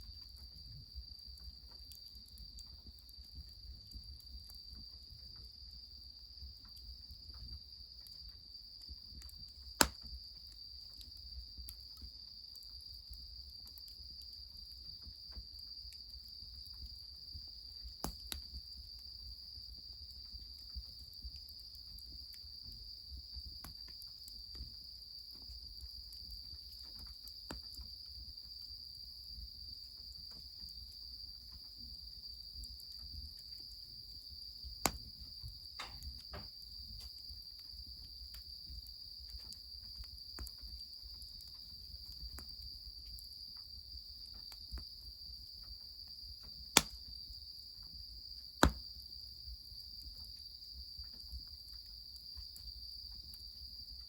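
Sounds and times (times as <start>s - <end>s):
crickets chirping: 0.0s - 54.0s
wood fire crackling: 0.1s - 44.9s, 46.5s - 47.1s, 48.5s - 49.0s
sharp snap: 9.8s - 10.0s, 46.8s - 47.0s, 48.6s - 48.8s.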